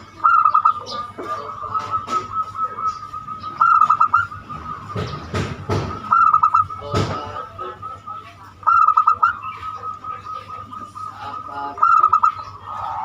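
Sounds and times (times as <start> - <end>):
dove cooing: 0.0 - 13.0
small birds chirping: 0.0 - 13.0
loud thumps: 3.9 - 7.4.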